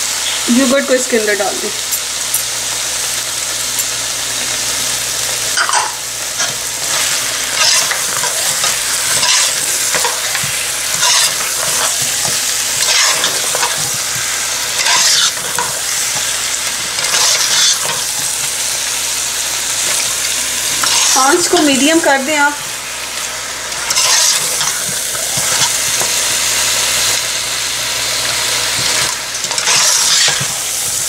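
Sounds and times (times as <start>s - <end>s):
meat frying in oil: 0.0s - 31.0s
metal spatula scraping pot: 5.6s - 14.0s, 14.8s - 15.8s, 17.0s - 18.1s, 23.9s - 25.8s, 29.4s - 30.6s.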